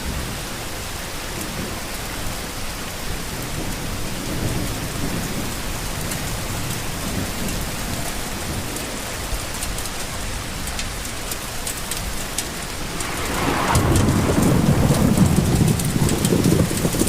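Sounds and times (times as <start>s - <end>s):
steady rain: 0.0s - 17.0s
raindrop ticks: 5.8s - 17.0s
rolling thunder rumble: 10.4s - 17.0s.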